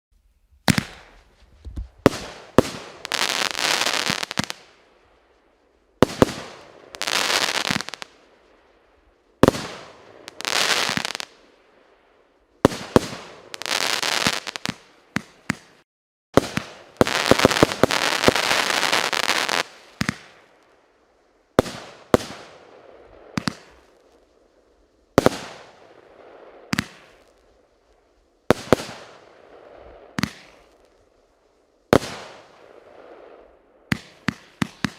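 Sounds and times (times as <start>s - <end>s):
fireworks crackling: 0.3s - 5.2s, 6.0s - 12.0s, 12.6s - 15.8s, 16.4s - 20.8s, 21.5s - 31.1s, 31.9s - 34.9s
fireworks bangs: 0.6s - 4.8s, 6.0s - 8.2s, 9.4s - 11.4s, 16.4s - 20.5s, 28.5s - 30.9s, 31.9s - 34.9s.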